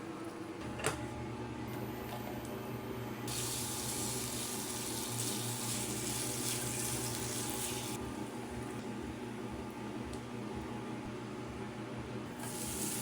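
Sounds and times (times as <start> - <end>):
water running: 3.3 - 8.0, 12.4 - 13.0.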